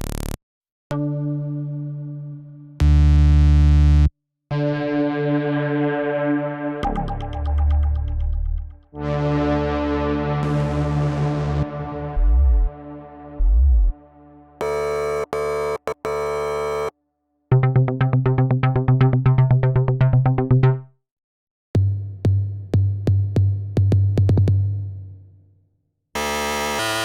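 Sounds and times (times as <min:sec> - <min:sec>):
synthesizer playing patches: 0:14.6 - 0:16.9, 0:26.2 - 0:27.0.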